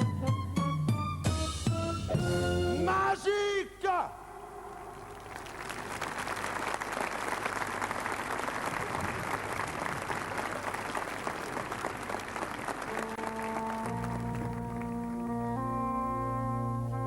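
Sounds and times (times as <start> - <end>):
audience applauding: 4.7 - 15.4
band brass chord: 13.0 - 17.0.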